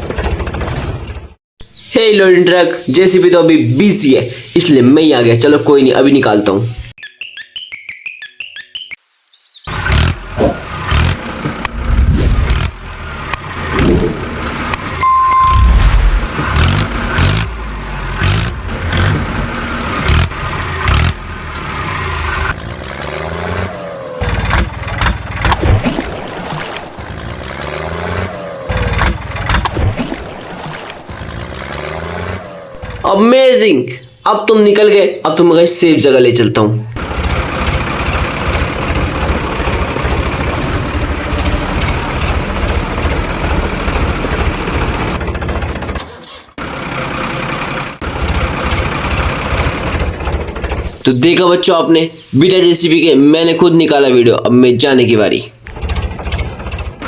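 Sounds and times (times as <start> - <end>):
tractor engine revving under load: 9.7 - 15.0, 15.9 - 25.5, 27.0 - 29.7, 31.1 - 34.3, 36.7 - 53.7.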